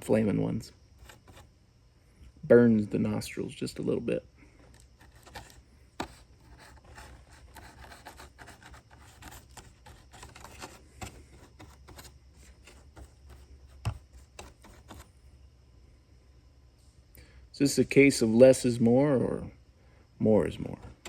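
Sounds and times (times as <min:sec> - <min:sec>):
handling foam parts: 0:01.0 - 0:01.5, 0:04.6 - 0:15.2.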